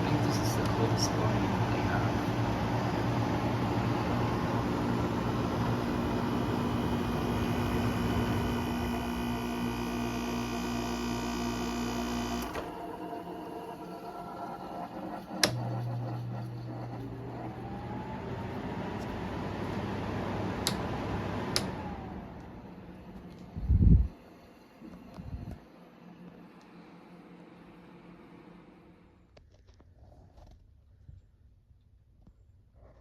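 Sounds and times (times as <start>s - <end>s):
air conditioner humming: 0.0s - 11.0s.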